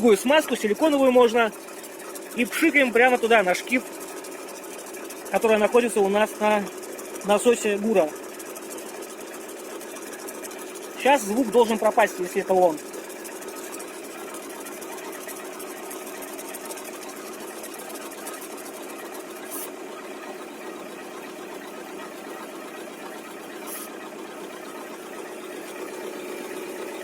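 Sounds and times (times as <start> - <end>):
car engine idling: 0.0 - 27.0
power-steering pump hum and crackling: 0.0 - 27.0.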